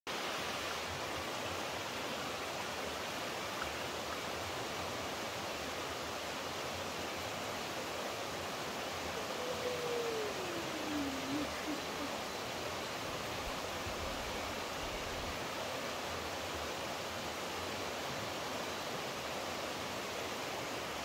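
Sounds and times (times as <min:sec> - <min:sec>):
flowing water rushing: 0:00.1 - 0:21.0
faint gliding tone: 0:09.1 - 0:13.0.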